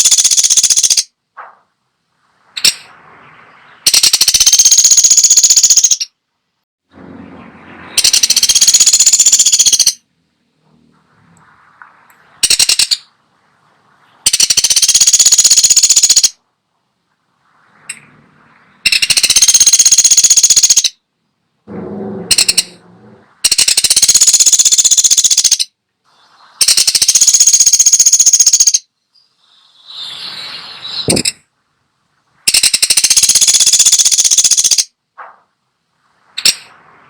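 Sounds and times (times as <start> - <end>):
woodpecker rattling trills: 0.0 - 1.1, 2.6 - 6.2, 7.9 - 10.0, 12.4 - 13.1, 14.2 - 16.4, 18.8 - 21.0, 22.1 - 22.8, 23.4 - 25.7, 26.6 - 30.1, 32.5 - 34.9
lower-pitched bird call: 7.1 - 10.0, 14.0 - 16.4, 22.0 - 31.4.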